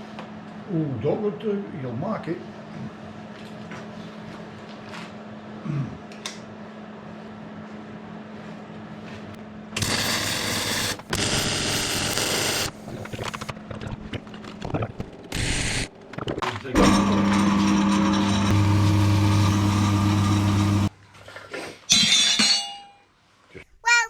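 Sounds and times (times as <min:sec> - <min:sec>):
workshop machine humming: 0:09.4 - 0:13.5, 0:15.2 - 0:15.9, 0:16.7 - 0:20.9.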